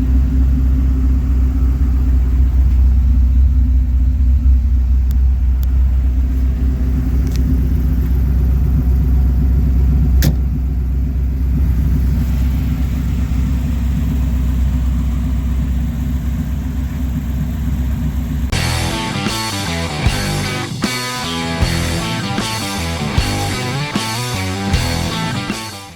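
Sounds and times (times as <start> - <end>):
deep engine exhaust rumble: 0.0 - 25.9.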